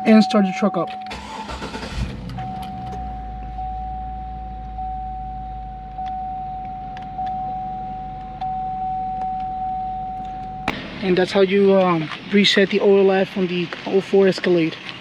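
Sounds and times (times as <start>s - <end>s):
dashboard warning chime dinging: 0.0s - 11.9s
car engine idling: 0.0s - 15.0s.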